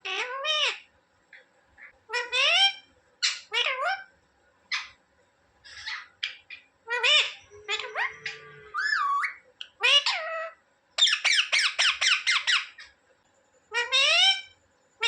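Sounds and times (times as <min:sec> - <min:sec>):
parrot calling and squawking: 0:00.0 - 0:00.9, 0:01.8 - 0:04.1, 0:04.7 - 0:05.0, 0:05.6 - 0:13.0, 0:13.7 - 0:14.6.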